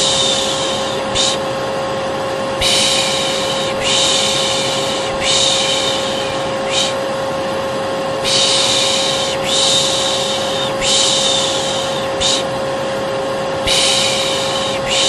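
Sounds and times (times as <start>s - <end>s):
person shushing: 0.0s - 1.5s, 2.6s - 7.1s, 8.2s - 12.5s, 13.6s - 15.0s
vacuum cleaner humming: 0.0s - 15.0s.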